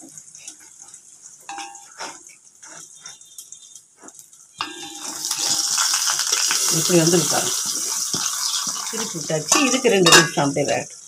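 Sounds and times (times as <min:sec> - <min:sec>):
batter sizzling in oil: 0:00.0 - 0:11.0
wooden spatula scraping: 0:04.0 - 0:09.8.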